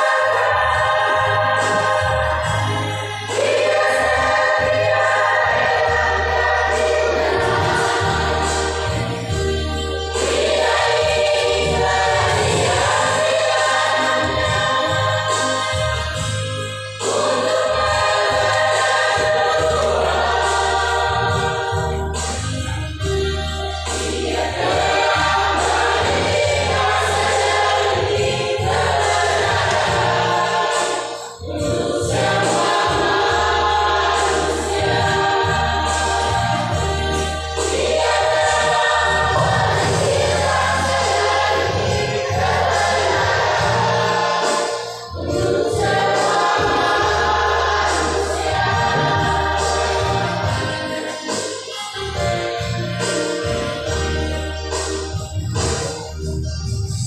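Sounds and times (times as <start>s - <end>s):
choir singing: 0.0s - 55.9s
steady low accompaniment: 45.2s - 50.9s.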